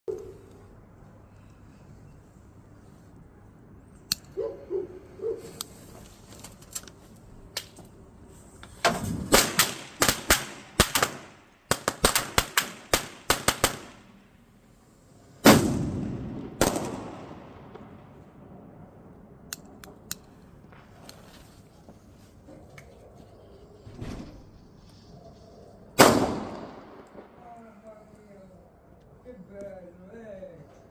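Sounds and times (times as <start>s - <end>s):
firecrackers popping: 9.0s - 14.1s, 15.4s - 18.4s, 19.6s - 22.0s
echoing firecracker booms: 15.4s - 19.0s, 26.0s - 27.4s.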